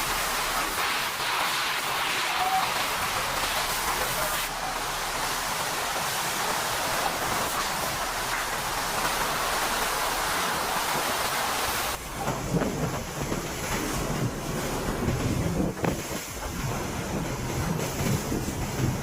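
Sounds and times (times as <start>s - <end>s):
heavy rain falling: 0.0s - 19.0s
wind buffeting microphone: 12.0s - 19.0s.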